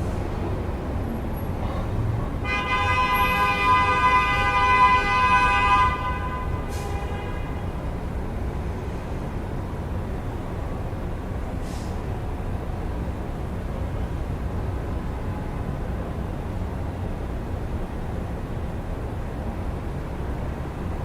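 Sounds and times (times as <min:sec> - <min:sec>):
city traffic rumble: 0:00.0 - 0:21.0
vehicle horn long blast: 0:02.4 - 0:07.7.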